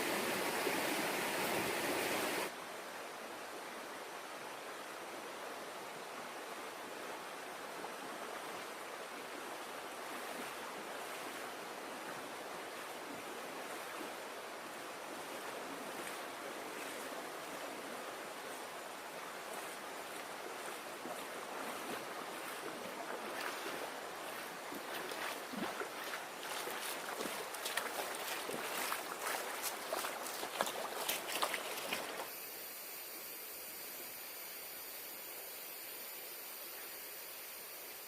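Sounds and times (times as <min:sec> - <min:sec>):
flowing river water: 0:00.0 - 0:38.0
splashes and knocks: 0:20.6 - 0:32.3.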